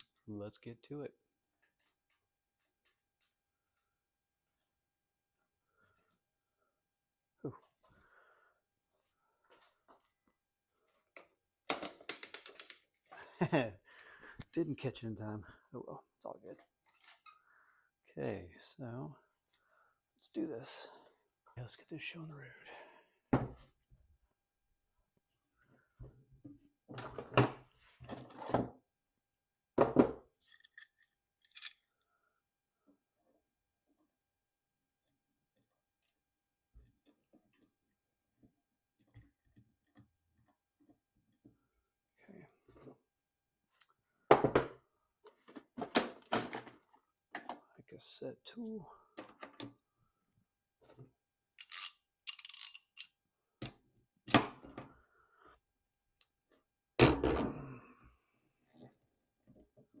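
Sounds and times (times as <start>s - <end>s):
small metal tools clinking: 30.4s - 31.9s, 51.6s - 53.1s.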